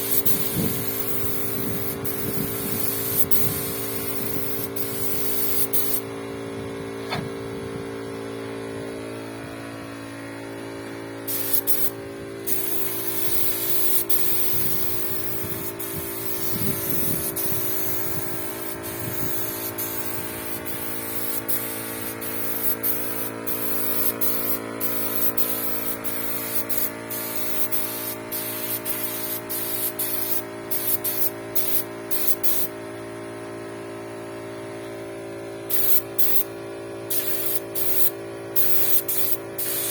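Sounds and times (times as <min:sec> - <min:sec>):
spray gun hissing in bursts: 0:00.0 - 0:06.4, 0:11.1 - 0:32.8, 0:35.7 - 0:36.5, 0:37.1 - 0:39.9
motor hum: 0:00.0 - 0:33.1.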